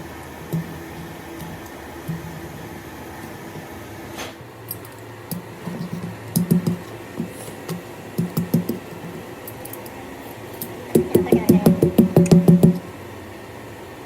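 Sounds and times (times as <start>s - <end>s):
steady low hum: 0.0s - 14.0s
irregular knocks and taps: 5.3s - 9.2s, 11.0s - 12.8s.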